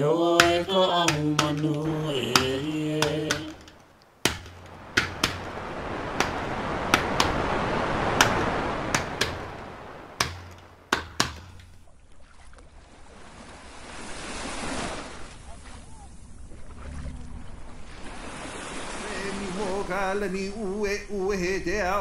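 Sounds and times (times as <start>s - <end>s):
hand-struck drum beats: 0.4s - 5.5s, 6.2s - 7.4s, 8.2s - 9.6s, 10.2s - 11.7s
rushing noise: 4.3s - 10.8s.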